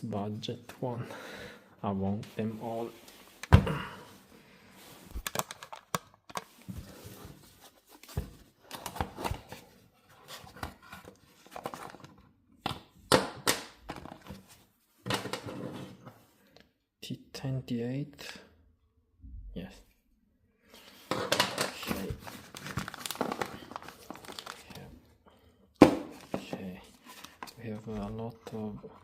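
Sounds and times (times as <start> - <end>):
packaging rustling: 4.9 - 9.6, 20.8 - 24.9, 26.0 - 28.1
clicks and knocks of handling: 5.2 - 6.7.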